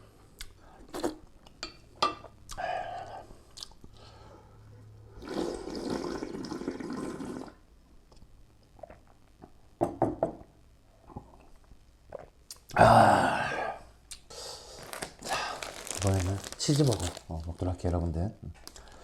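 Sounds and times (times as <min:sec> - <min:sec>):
mouth clicks while eating: 0:02.5 - 0:04.0, 0:12.1 - 0:12.8, 0:14.1 - 0:14.3.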